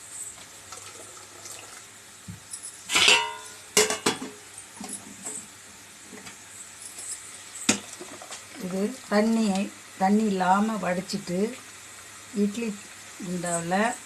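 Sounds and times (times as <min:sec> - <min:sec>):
steel vessels knocking and clinking: 0:02.4 - 0:05.2
loud ringing metal clang: 0:02.9 - 0:04.0.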